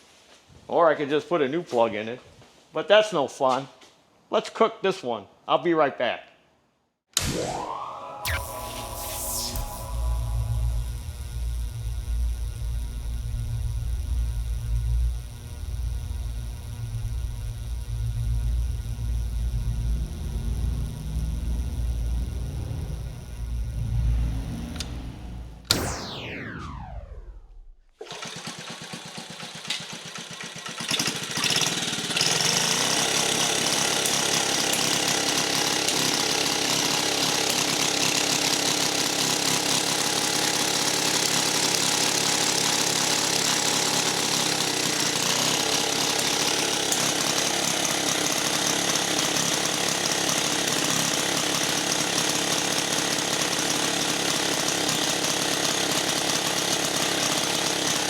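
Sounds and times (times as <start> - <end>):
small engine running at high speed: 8.2 - 58.0
small engine cranking: 28.0 - 58.0.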